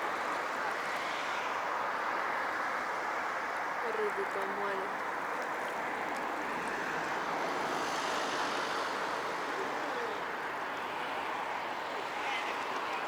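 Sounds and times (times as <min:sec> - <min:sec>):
distant city traffic: 0:06.4 - 0:13.0.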